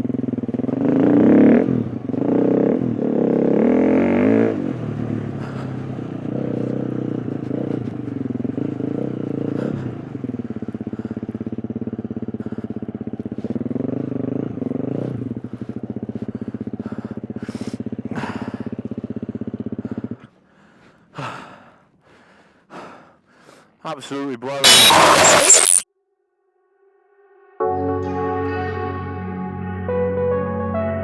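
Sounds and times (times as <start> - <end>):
dirt bike engine revving: 0.0 - 20.2, 24.1 - 25.8
heavy breathing: 5.0 - 24.2.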